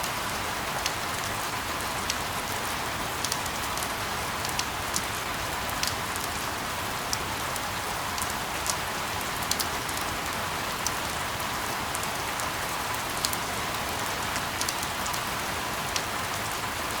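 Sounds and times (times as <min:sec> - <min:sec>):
steady rain hissing: 0:00.0 - 0:17.0
sharp raindrop ticks: 0:03.2 - 0:05.1, 0:05.7 - 0:06.4, 0:14.3 - 0:15.2.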